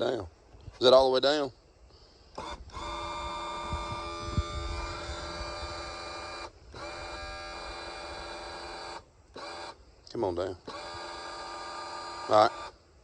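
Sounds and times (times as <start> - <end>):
electric motor and pump whine: 2.4 - 9.8, 10.6 - 12.8.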